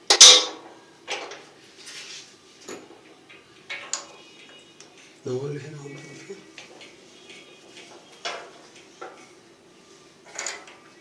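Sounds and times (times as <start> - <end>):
loud metal clank: 0.1 - 0.6.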